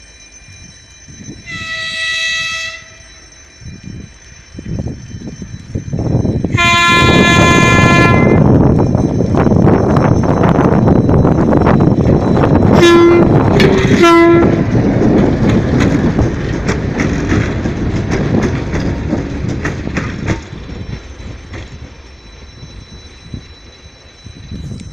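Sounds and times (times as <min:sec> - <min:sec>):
train rolling past: 0:00.0 - 0:24.9
locomotive horn: 0:01.5 - 0:03.0, 0:06.5 - 0:08.4, 0:12.7 - 0:14.6
wheels clicking over rail joints: 0:12.0 - 0:24.9.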